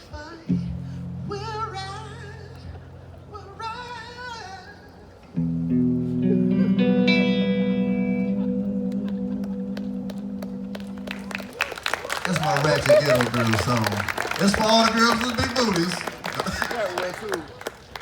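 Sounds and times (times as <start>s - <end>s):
acoustic guitar chords: 0.2s - 11.4s.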